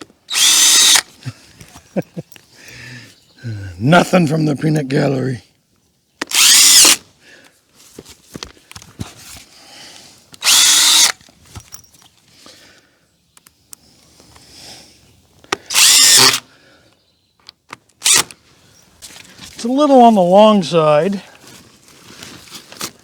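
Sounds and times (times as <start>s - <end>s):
screw gun motor running: 0.3s - 1.1s, 6.3s - 7.0s, 10.4s - 11.2s, 15.7s - 16.4s, 18.0s - 18.3s.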